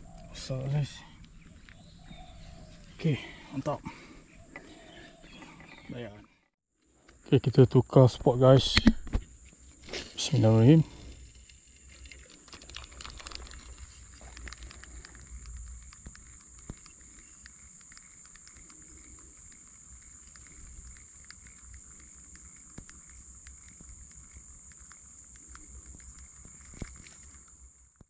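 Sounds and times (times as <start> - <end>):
insect drone: 6.8 - 28.0.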